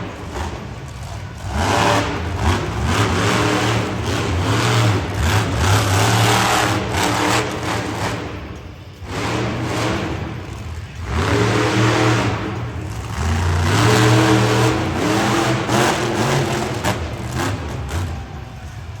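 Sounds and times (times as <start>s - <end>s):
truck engine revving: 0.0s - 19.0s.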